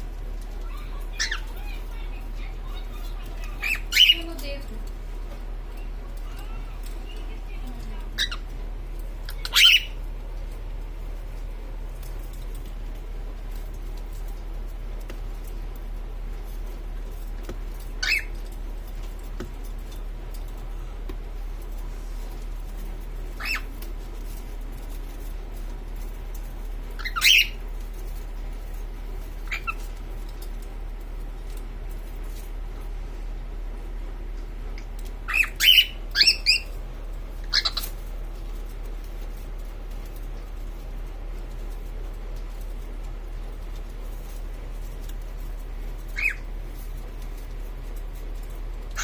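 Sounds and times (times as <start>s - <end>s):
cockatiel chirping: 0.7s - 4.4s, 8.0s - 8.5s, 9.2s - 10.0s, 17.8s - 18.5s, 23.3s - 23.9s, 26.9s - 27.7s, 29.4s - 29.9s, 35.2s - 36.8s, 37.4s - 38.0s, 46.0s - 46.5s.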